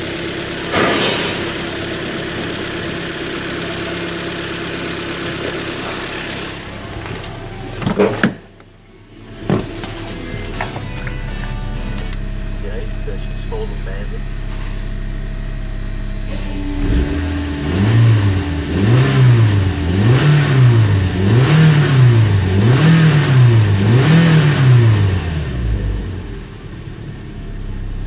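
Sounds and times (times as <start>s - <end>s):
car engine idling and revving: 0.0s - 28.0s.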